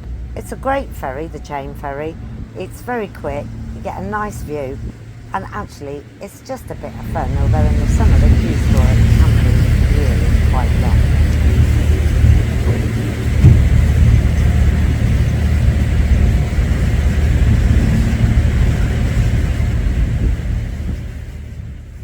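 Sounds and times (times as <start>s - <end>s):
ferry engines droning: 0.0s - 22.0s
rushing noise: 6.4s - 22.0s.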